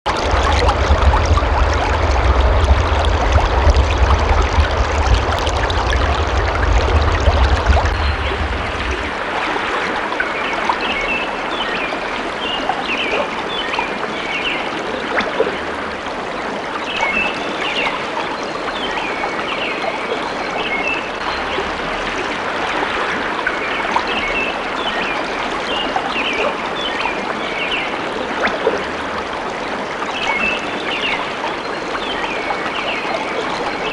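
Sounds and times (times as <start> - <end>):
low rumble: 0.1 - 9.7
water stream flowing: 0.1 - 33.9.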